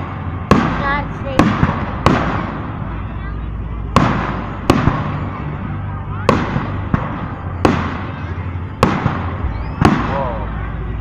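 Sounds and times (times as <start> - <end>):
fireworks bangs: 0.0 - 3.0, 3.9 - 5.4, 6.2 - 10.7
rumble after bangs: 3.8 - 5.6, 6.2 - 10.7.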